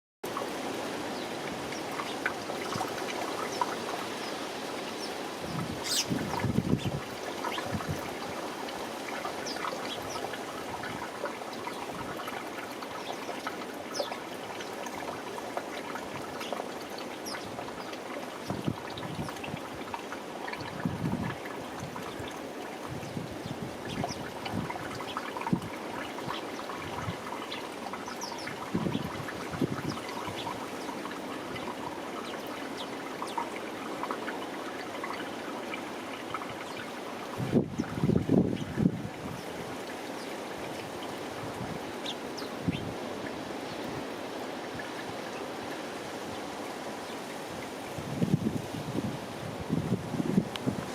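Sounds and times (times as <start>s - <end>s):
small birds chirping: 1.1s - 7.9s, 9.1s - 14.8s, 16.3s - 19.5s, 24.9s - 33.7s.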